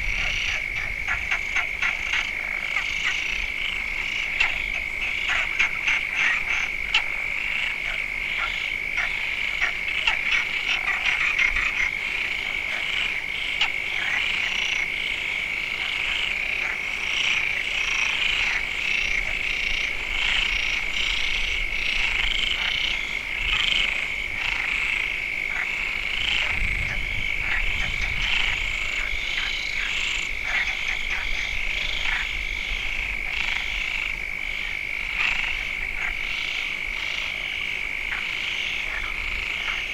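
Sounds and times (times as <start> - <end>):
frogs croaking: 0.0 - 39.9
frogs trilling: 0.0 - 39.9.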